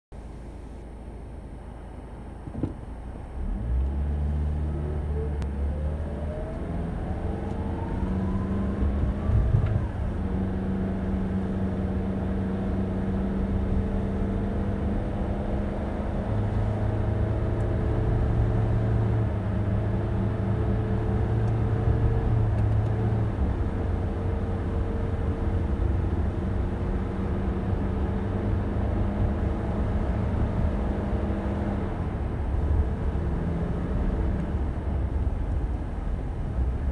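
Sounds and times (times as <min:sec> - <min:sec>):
car engine pulling away: 0:02.3 - 0:36.9.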